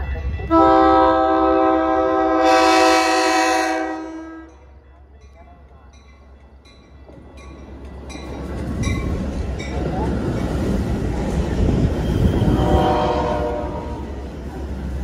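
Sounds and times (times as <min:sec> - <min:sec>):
locomotive bell ringing: 0:00.0 - 0:15.0
train rumble: 0:00.0 - 0:15.0.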